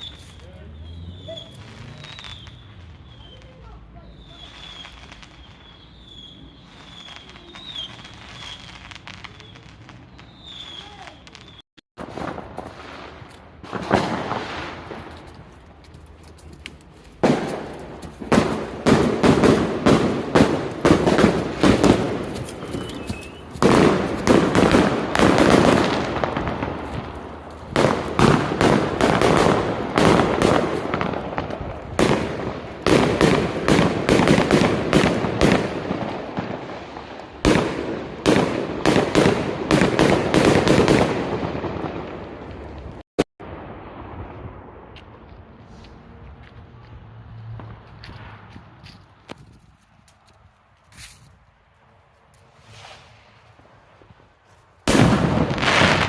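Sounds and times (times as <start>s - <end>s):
fireworks banging: 0.0s - 45.9s, 52.5s - 54.2s, 54.8s - 56.0s
fireworks crackling: 0.0s - 46.0s, 50.9s - 56.0s
faint high chirp: 22.8s - 23.5s.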